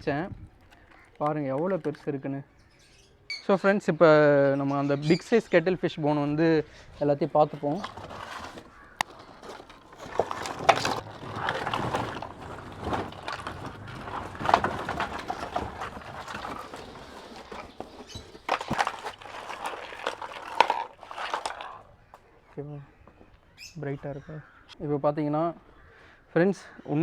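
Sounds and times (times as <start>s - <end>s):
rustling packaging: 7.3s - 21.9s.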